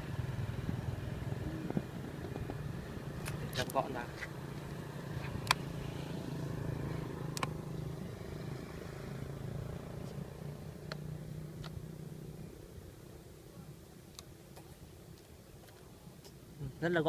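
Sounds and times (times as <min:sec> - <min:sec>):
low engine hum: 0:00.0 - 0:13.8
sharp clicks: 0:07.3 - 0:07.6.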